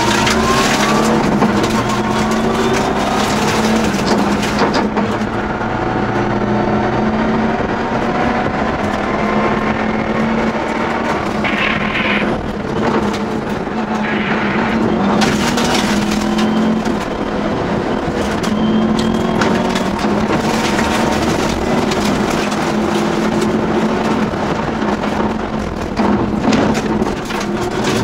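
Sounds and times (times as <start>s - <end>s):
sharp clicks and knocks: 0.0s - 5.4s
rally car engine driven hard: 0.0s - 28.0s.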